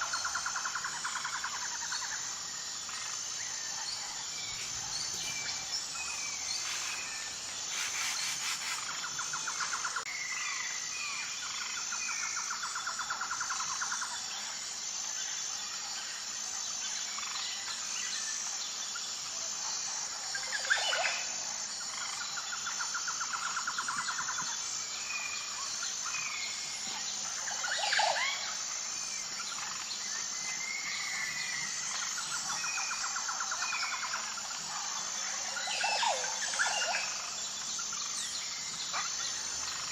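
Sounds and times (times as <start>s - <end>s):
high-pitched insect chorus: 0.0s - 39.9s
birds chirping and calling: 4.0s - 9.6s.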